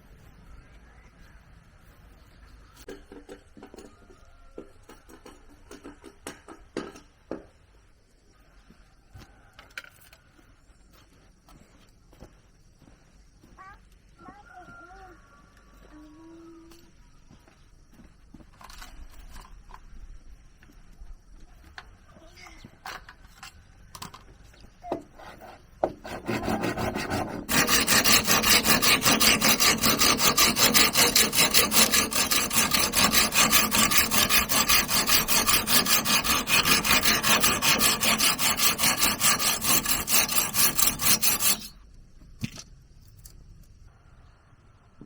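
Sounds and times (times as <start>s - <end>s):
hand tool sawing wood: 25.2s - 41.8s.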